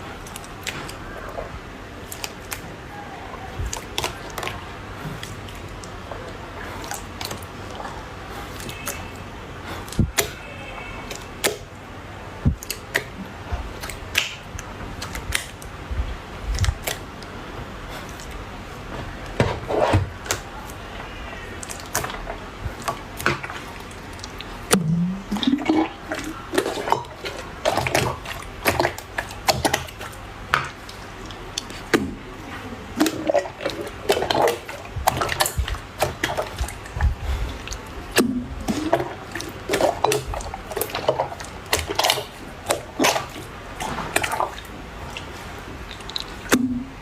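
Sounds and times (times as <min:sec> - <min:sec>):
slime squishing and popping: 0:13.8 - 0:15.7.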